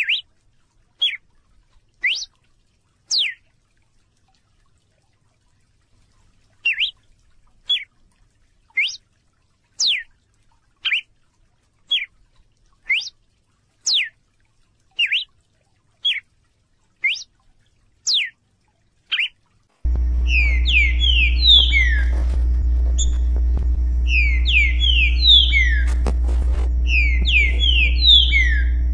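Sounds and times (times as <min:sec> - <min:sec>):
bird calling sweeping note: 0:19.9 - 0:28.9
music with low drone and gliding tones: 0:19.9 - 0:28.9.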